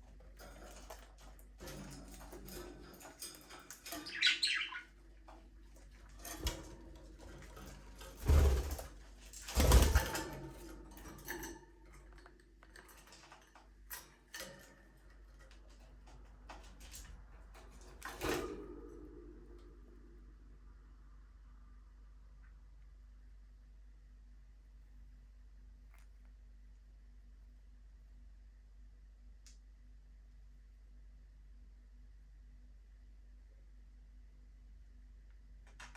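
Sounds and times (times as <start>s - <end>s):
budgerigars chirping and twittering: 3.9s - 4.9s.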